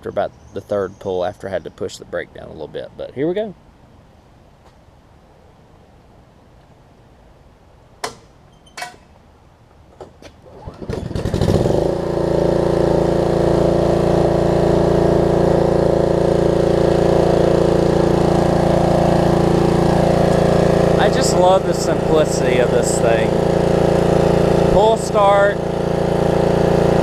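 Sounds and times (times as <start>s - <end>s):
mower engine pull-starting and running: 10.2s - 27.0s.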